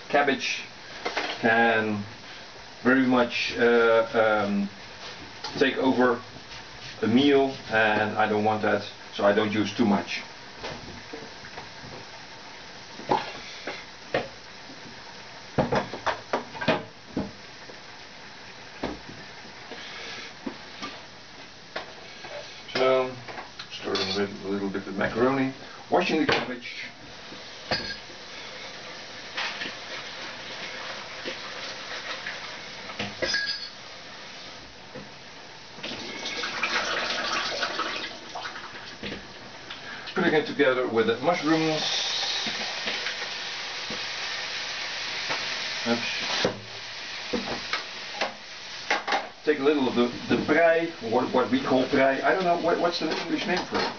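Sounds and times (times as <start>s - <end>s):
dishes and utensils clattering: 27.7s - 28.0s, 33.2s - 33.8s
water running from tap: 29.9s - 32.5s, 35.8s - 39.1s, 41.2s - 44.0s.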